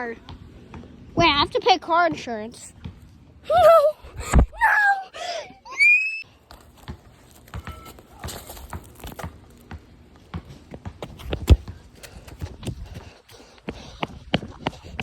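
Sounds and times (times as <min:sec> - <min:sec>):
running footsteps on hard ground: 0:06.5 - 0:15.0.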